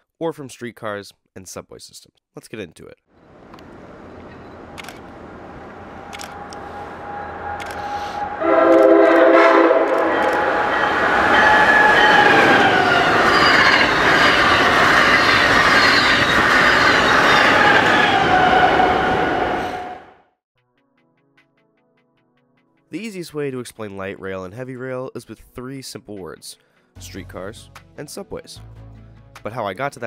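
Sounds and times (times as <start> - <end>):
high-speed train passing: 3.2 - 20.2
train horn chord: 5.8 - 13.0.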